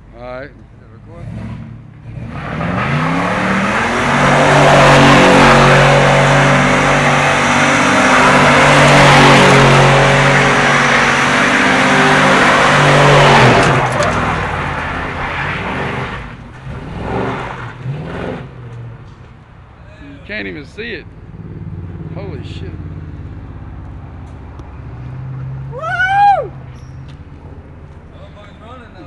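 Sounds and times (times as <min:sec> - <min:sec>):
car engine revving: 0:00.9 - 0:19.2, 0:20.3 - 0:25.8
spinning tyres hissing: 0:02.2 - 0:17.9.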